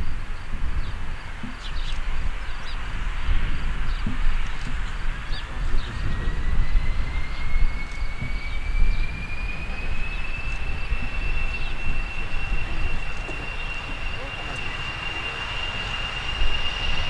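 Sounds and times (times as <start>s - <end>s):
jet engines spooling up: 2.8s - 17.0s
low rumble: 8.5s - 17.0s.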